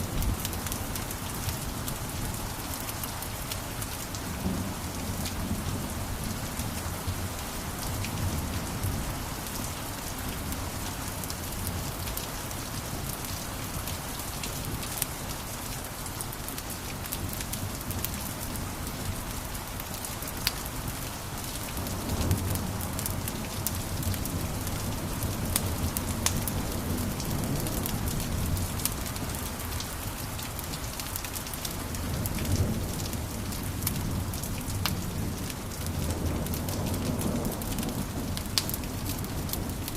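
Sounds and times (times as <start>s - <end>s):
fireplace fire crackling and popping: 33.8s - 39.9s.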